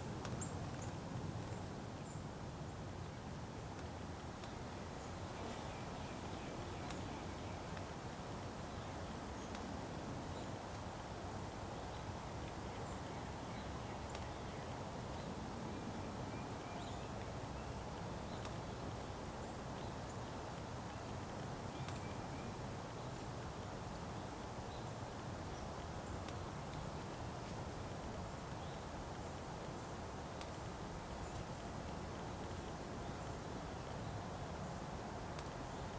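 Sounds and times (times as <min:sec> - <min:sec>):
low background rumble: 0:00.0 - 0:03.8
faint high chirps and ticks: 0:00.0 - 0:07.9, 0:08.7 - 0:09.7, 0:11.8 - 0:15.4, 0:16.3 - 0:23.5, 0:24.1 - 0:35.9.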